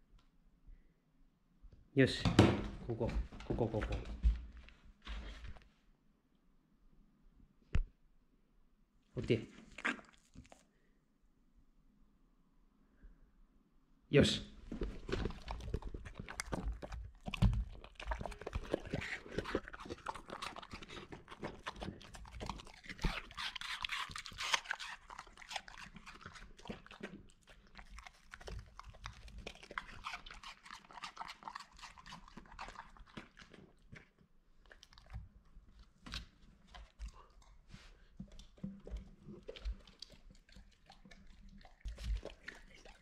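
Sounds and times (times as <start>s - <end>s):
dog chewing and crunching: 14.6s - 43.0s.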